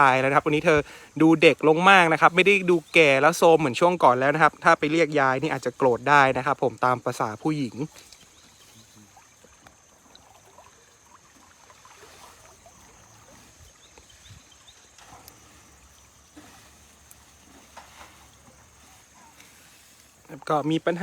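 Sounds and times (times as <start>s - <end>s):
soft steady hiss: 0.0s - 21.0s
small clicks and rustles: 7.9s - 8.8s.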